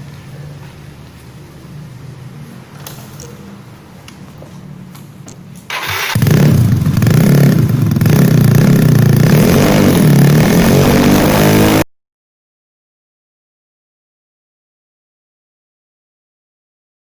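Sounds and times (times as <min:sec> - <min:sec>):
scooter engine running loud: 0:05.7 - 0:11.8.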